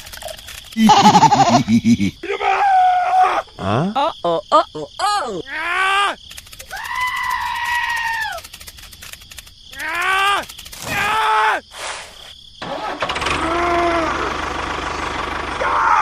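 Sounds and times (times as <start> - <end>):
small engine cranking: 0.0 - 1.6, 6.2 - 11.0, 12.6 - 15.5
small engine running: 12.6 - 16.0.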